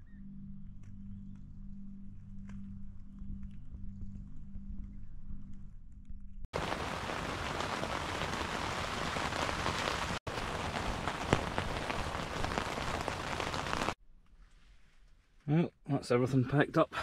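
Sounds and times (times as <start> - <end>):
steady rain falling: 6.6 - 14.0.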